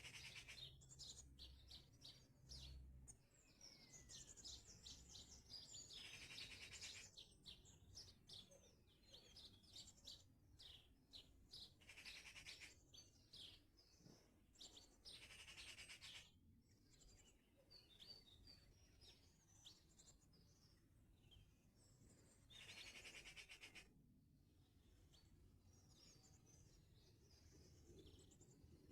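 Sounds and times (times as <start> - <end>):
faint songbirds chirping: 0.0 - 28.9
rapid bird trill: 11.8 - 12.8.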